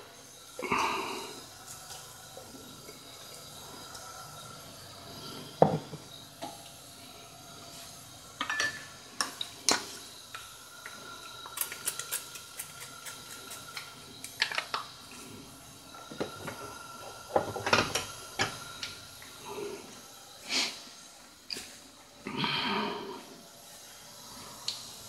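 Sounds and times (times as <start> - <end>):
pans and dishes clattering: 8.4 - 9.4.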